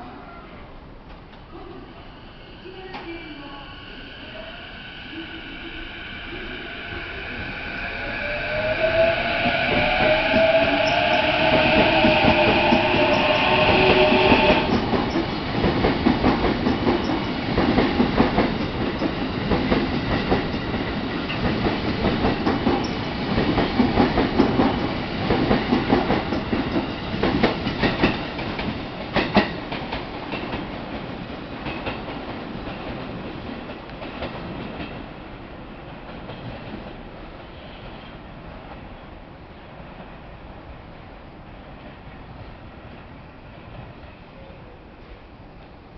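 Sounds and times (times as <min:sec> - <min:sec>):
electric train motors whining: 0:04.2 - 0:14.8.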